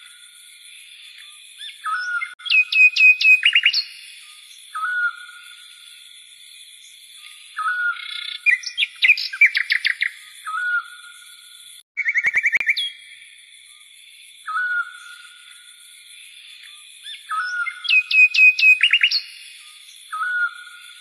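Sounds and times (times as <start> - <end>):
small songbirds chirping: 0.0 - 21.0
whistled bird note: 12.0 - 13.2, 17.0 - 19.4, 20.1 - 20.8.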